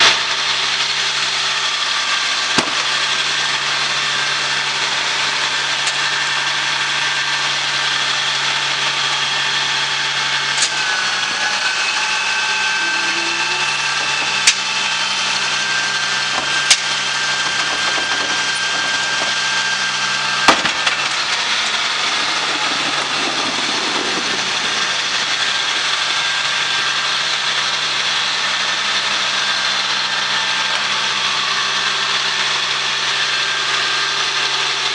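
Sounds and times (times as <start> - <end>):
garbage truck engine running: 0.0 - 34.9
high-pitched whine: 0.0 - 34.9.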